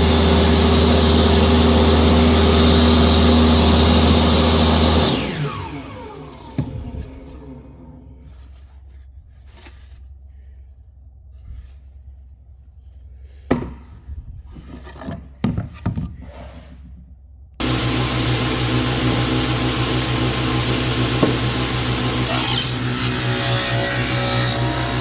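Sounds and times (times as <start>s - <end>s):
woodworking power tool humming: 0.0s - 8.6s, 17.6s - 25.0s
wood rubbing scrapes: 8.1s - 10.6s, 11.3s - 17.1s.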